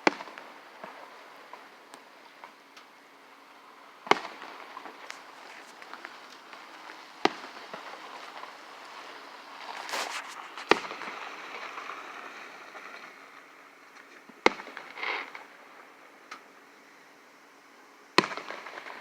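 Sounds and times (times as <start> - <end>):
fireworks crackling: 0.0 - 16.4, 18.2 - 19.0
fireworks bangs: 4.0 - 13.3, 14.4 - 15.6, 18.2 - 19.0.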